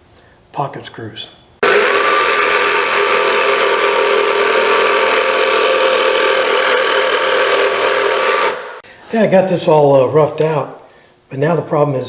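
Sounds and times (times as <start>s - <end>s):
power tool motor running: 1.6s - 8.8s.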